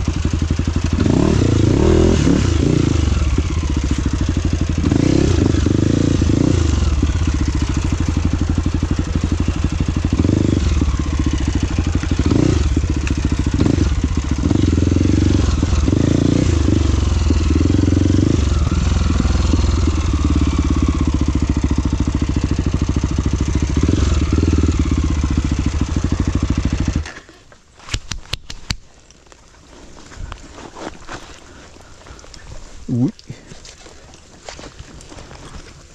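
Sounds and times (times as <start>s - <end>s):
motorcycle engine running: 0.0s - 27.3s.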